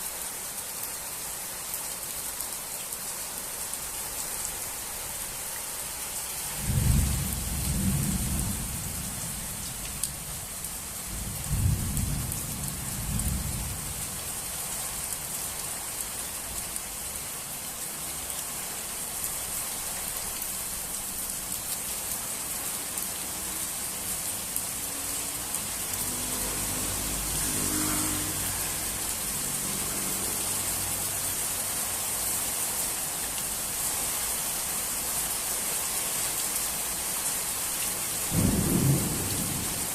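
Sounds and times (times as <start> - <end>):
steady rain falling: 0.0 - 39.9
thunder rumbling: 6.6 - 9.1, 38.3 - 39.9.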